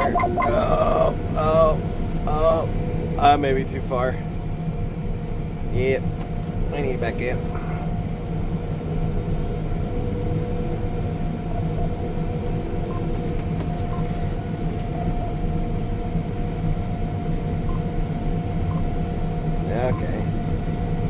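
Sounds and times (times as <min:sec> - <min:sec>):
thin steady whine: 0:00.0 - 0:03.3, 0:13.8 - 0:21.0
combine harvester low drone: 0:00.0 - 0:21.0.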